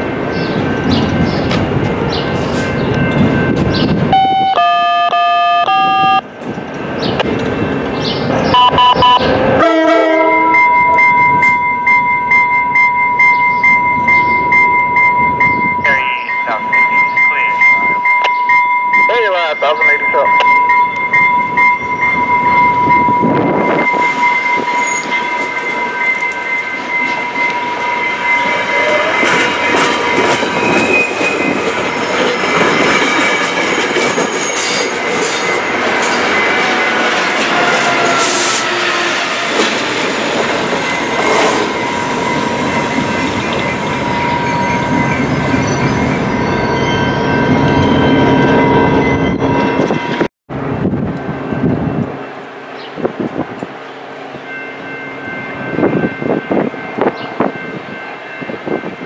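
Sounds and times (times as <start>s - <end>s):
train rumbling on rails: 0.0s - 4.6s, 5.7s - 59.0s
train wheels squealing: 20.4s - 39.8s, 40.6s - 48.3s.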